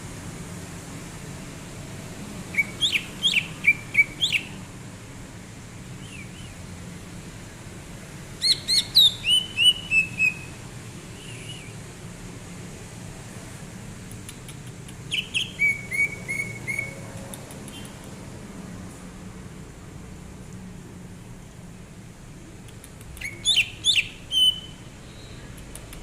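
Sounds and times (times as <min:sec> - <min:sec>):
bird whistling song: 0:02.5 - 0:04.6, 0:06.0 - 0:06.6, 0:08.4 - 0:10.6, 0:11.2 - 0:11.8, 0:15.1 - 0:17.0, 0:23.2 - 0:25.4.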